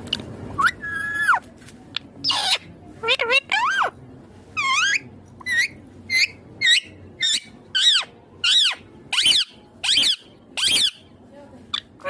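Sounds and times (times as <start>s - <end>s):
parakeet shrill calls: 2.2s - 3.9s, 4.6s - 11.1s.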